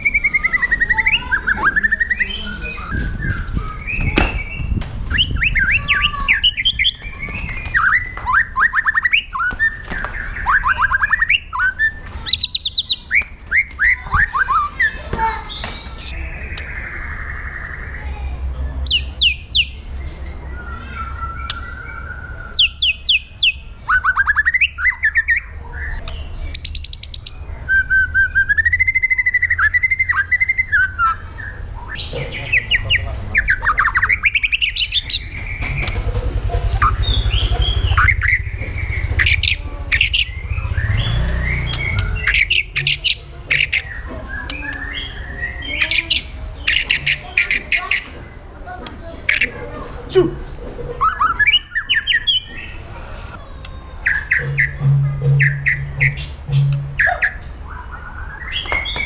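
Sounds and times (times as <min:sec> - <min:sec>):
bird singing: 0:00.0 - 0:48.4, 0:51.0 - 0:59.0
steady low hum: 0:54.4 - 0:57.8.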